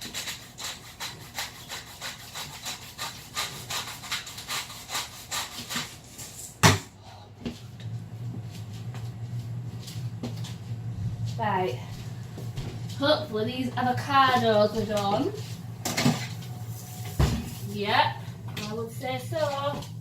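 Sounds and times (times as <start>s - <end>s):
low steady hum: 6.3s - 20.0s.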